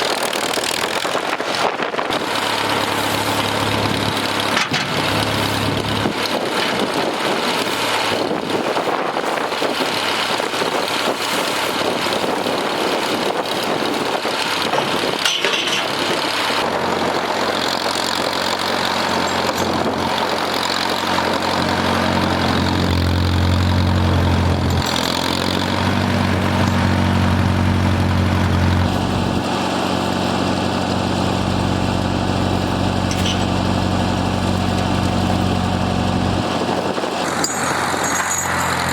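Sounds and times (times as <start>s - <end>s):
tractor engine running: 0.0s - 38.9s
wind noise on microphone: 0.2s - 18.4s, 19.0s - 24.9s, 34.4s - 38.9s.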